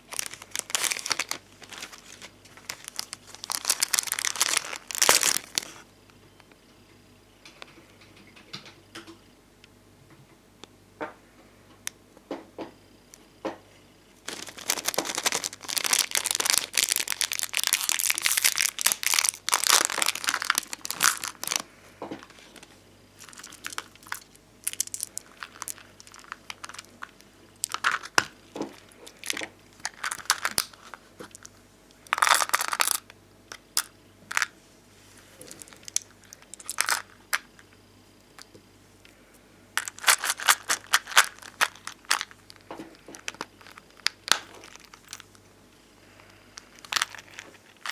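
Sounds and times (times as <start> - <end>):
plastic stickers crinkling: 0.0 - 5.8, 14.2 - 33.6, 35.2 - 37.5, 39.8 - 45.4, 46.3 - 47.9.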